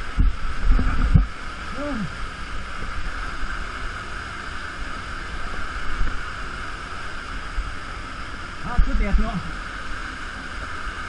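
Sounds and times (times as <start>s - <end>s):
low rumble on microphone: 0.0s - 11.0s
waterfall roaring: 0.0s - 11.0s.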